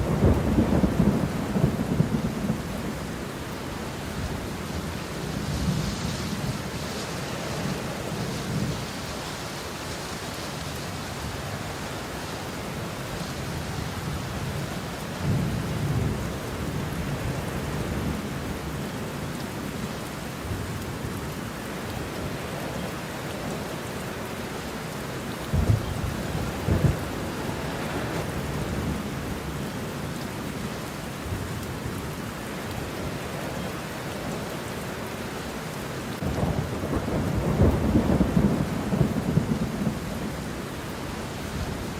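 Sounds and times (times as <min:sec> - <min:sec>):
sharp cracks of thunder: 0:00.0 - 0:02.7, 0:25.5 - 0:29.0, 0:36.3 - 0:40.1
rolling thunder: 0:00.0 - 0:03.0, 0:25.4 - 0:29.6, 0:36.2 - 0:40.4
heavy rain: 0:00.0 - 0:41.9.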